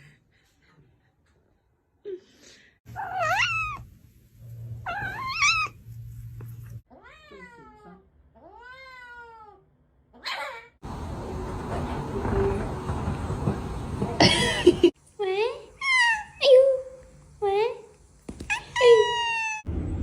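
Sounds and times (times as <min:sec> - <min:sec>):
cats meowing: 0:02.9 - 0:03.8, 0:04.8 - 0:05.8.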